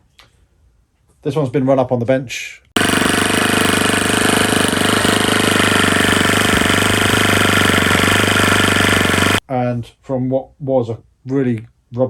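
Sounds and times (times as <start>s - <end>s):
model aircraft engine running: 2.8s - 9.4s.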